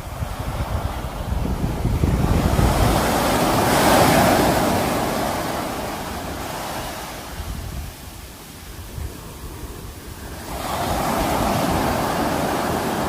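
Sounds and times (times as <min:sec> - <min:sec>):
sea waves breaking: 0:00.0 - 0:13.0
wind buffeting microphone: 0:00.0 - 0:13.0.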